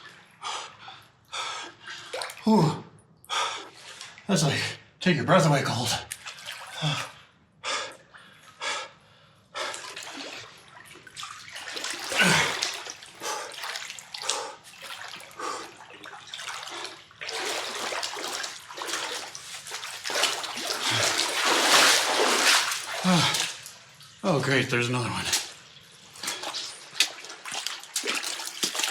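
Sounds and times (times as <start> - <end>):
splashing and sloshing water: 0.0 - 4.6, 5.6 - 28.9
person grunting: 2.5 - 2.9, 12.2 - 12.6, 23.0 - 23.4
person gasping: 12.2 - 12.6, 23.0 - 23.6.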